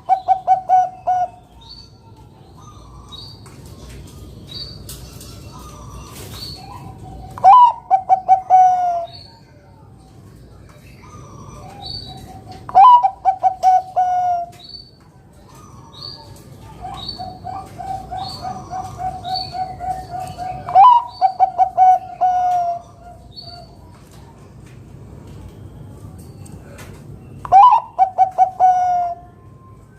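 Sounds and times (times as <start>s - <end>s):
dove cooing song: 0.0s - 1.7s, 5.2s - 9.3s, 11.0s - 14.6s, 15.4s - 23.9s, 27.4s - 29.7s.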